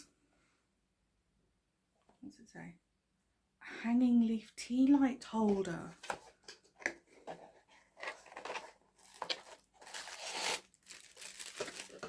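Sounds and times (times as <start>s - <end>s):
packaging crinkling and tearing: 8.0s - 12.0s.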